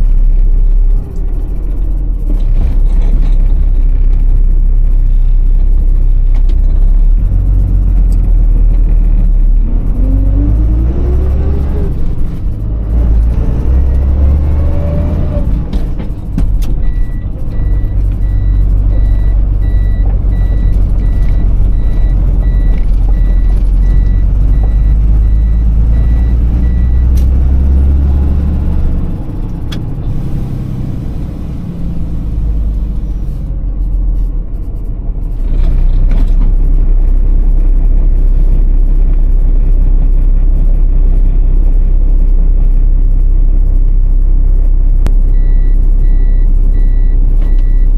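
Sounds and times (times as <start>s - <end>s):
diesel truck engine running: 0.0s - 47.9s
high beeping tone: 16.8s - 28.0s.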